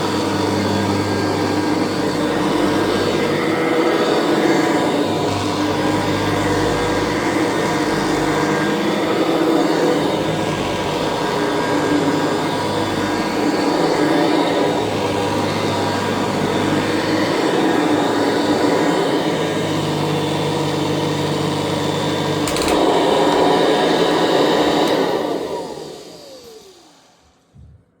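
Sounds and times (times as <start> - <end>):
vacuum cleaner running: 0.0 - 27.7
vacuum cleaner switch click: 22.4 - 23.6, 24.8 - 25.1.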